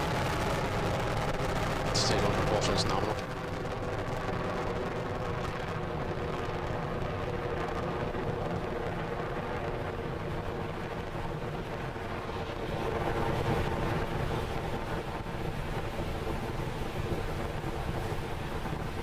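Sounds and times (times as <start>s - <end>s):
rocket engines roaring: 0.0s - 19.0s.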